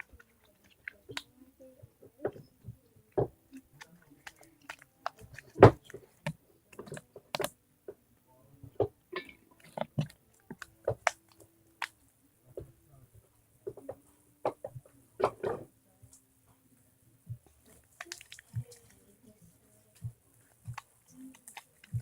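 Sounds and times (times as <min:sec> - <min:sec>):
slime squishing by hand: 0:02.1 - 0:07.6, 0:17.2 - 0:22.0.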